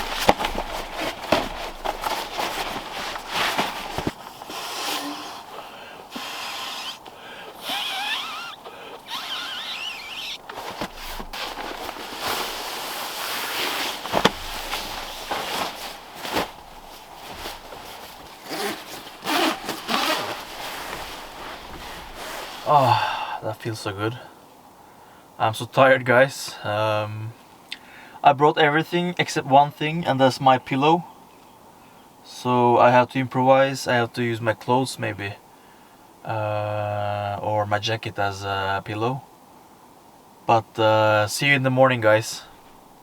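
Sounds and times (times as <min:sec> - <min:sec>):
handling knocks: 0:00.0 - 0:05.7, 0:08.6 - 0:22.6
cloth rustling: 0:00.0 - 0:22.8.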